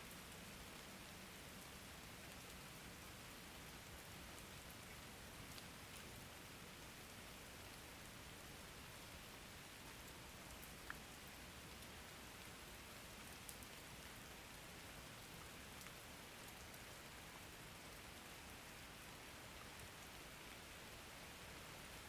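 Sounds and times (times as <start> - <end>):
faint rain falling: 0.0 - 22.0
rain drop ticks: 10.5 - 11.9, 13.4 - 13.8, 15.8 - 16.9.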